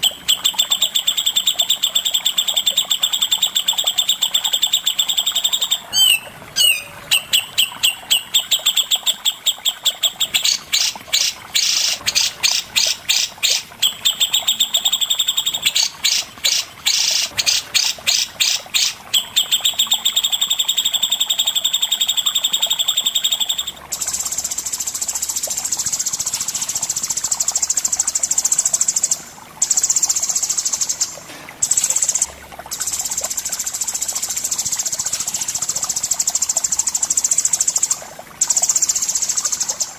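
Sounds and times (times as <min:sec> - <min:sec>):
songbird trilling: 0:00.0 - 0:20.1.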